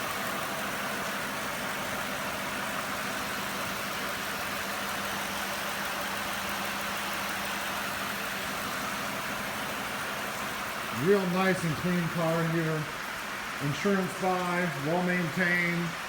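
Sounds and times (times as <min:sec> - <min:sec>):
car engine idling: 0:00.0 - 0:15.9.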